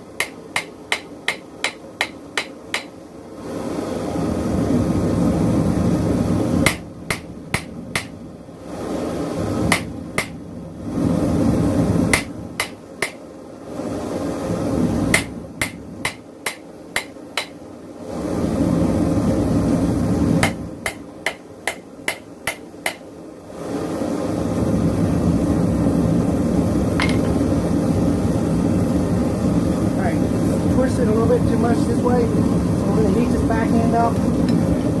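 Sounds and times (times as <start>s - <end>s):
hammer striking metal on anvil: 0.2s - 2.9s, 6.6s - 8.1s, 15.2s - 17.6s, 20.4s - 23.0s, 27.0s - 27.3s
propane forge rushing: 3.3s - 13.0s, 23.4s - 35.0s.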